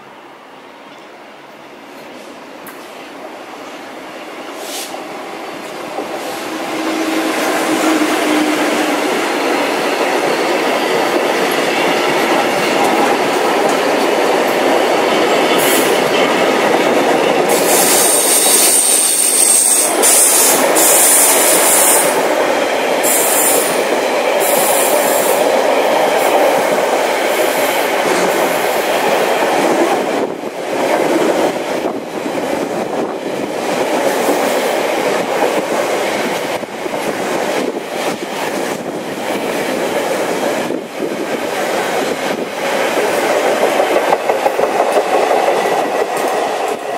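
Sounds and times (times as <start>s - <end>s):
freight train wheels rumbling: 0.0s - 46.9s
high-pitched wheel screeching: 6.2s - 9.6s, 17.7s - 22.2s.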